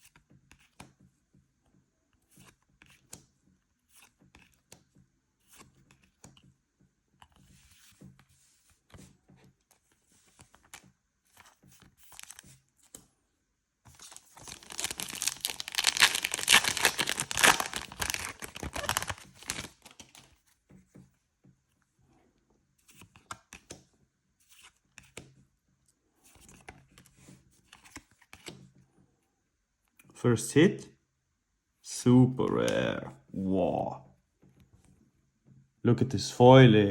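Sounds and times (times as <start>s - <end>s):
cards rustling and clicking: 2.2s - 3.2s, 5.4s - 6.4s, 9.7s - 13.1s, 13.9s - 20.6s, 22.8s - 23.8s, 24.4s - 25.4s, 26.3s - 28.6s
foil wrapper tearing and crinkling: 12.1s - 12.4s, 14.0s - 20.2s.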